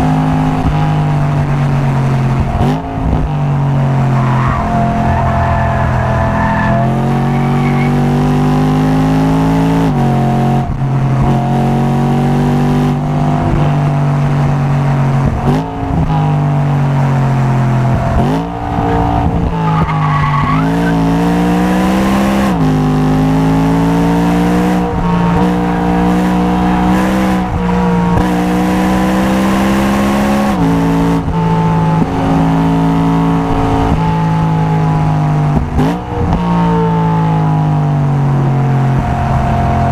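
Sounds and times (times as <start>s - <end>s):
race car engine revving: 0.0s - 39.9s
tyre squeal: 4.1s - 8.0s, 17.9s - 21.0s.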